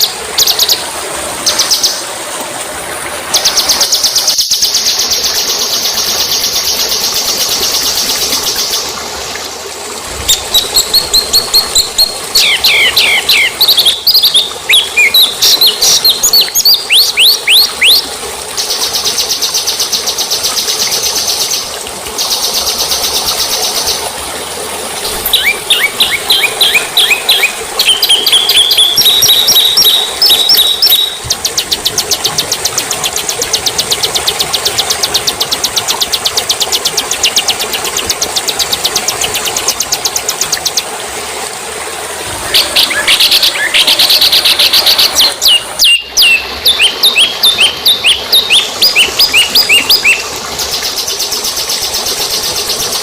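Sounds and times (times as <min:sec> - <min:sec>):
songbird whistled notes and trill: 0:10.3 - 0:18.0, 0:25.1 - 0:31.3, 0:42.5 - 0:50.2.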